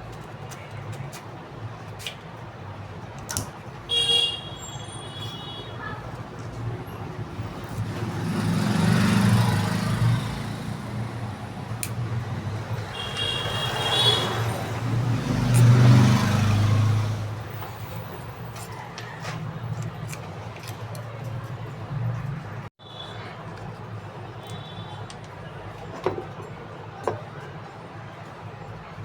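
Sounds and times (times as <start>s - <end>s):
steady low traffic hum: 0.0s - 29.0s
vehicles passing: 0.0s - 29.0s
car horn toot: 3.9s - 5.8s, 12.9s - 14.6s.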